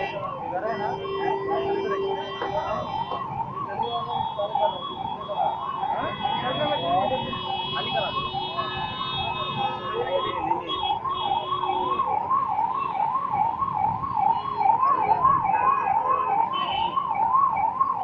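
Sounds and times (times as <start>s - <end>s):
fire engine siren wailing: 0.0s - 18.0s.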